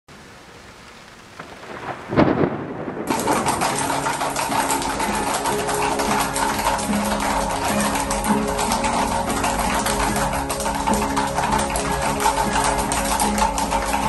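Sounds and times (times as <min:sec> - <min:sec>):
rain patter: 0:00.1 - 0:14.0
thunder rumble: 0:01.3 - 0:05.2
soft instrumental music: 0:03.1 - 0:14.0.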